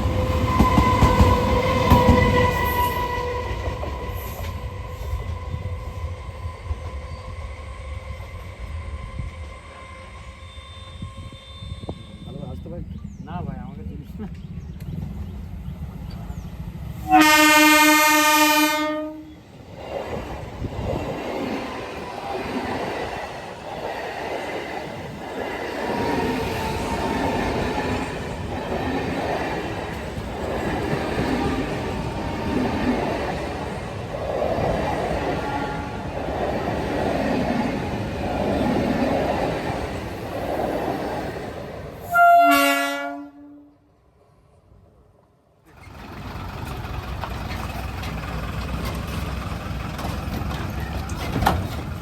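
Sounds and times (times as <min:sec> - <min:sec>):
train horn: 0:00.0 - 0:06.4, 0:17.0 - 0:19.4, 0:35.4 - 0:36.1, 0:42.0 - 0:43.9
train rumbling and clattering past: 0:00.0 - 0:43.0, 0:45.6 - 0:52.0.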